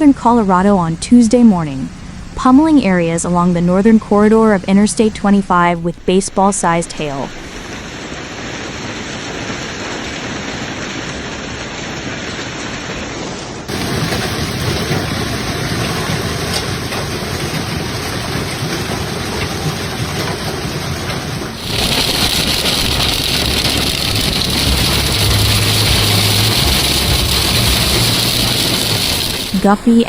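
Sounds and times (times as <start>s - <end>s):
low rumble of running vehicle: 0.0s - 7.9s, 21.4s - 30.0s
heavy hail and rain pelting: 4.1s - 30.0s.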